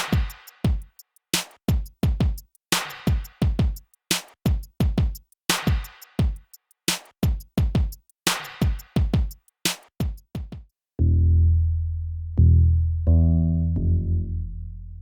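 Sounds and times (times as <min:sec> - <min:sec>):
snare hits: 0:00.0 - 0:00.7, 0:01.4 - 0:01.6, 0:02.7 - 0:03.5, 0:04.1 - 0:04.4, 0:05.5 - 0:06.3, 0:06.9 - 0:07.2, 0:08.3 - 0:09.0, 0:09.7 - 0:10.0
hi-hat ticks: 0:00.0 - 0:10.4
drum machine kick drums: 0:00.0 - 0:10.7.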